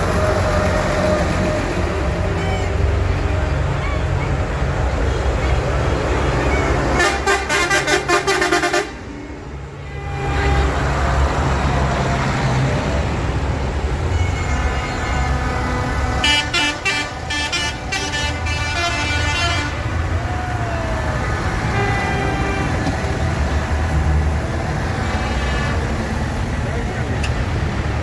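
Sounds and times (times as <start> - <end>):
diesel tractor engines rumbling: 0.0 - 28.0
horn toots: 6.8 - 9.0, 14.1 - 20.1, 21.3 - 23.7.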